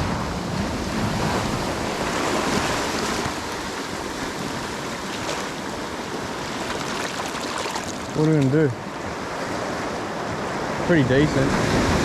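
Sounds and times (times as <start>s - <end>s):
wind buffeting microphone: 0.0s - 6.8s
surf washing on shore: 0.0s - 12.0s.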